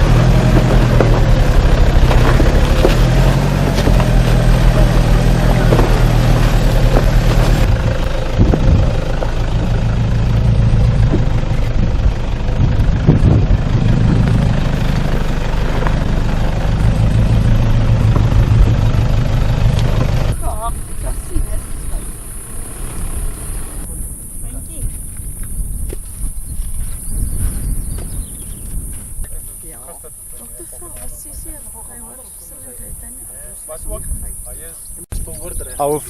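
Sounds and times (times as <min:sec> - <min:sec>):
vehicle knocks and clunks: 0:00.0 - 0:23.9
engine running at low revs: 0:00.0 - 0:25.5.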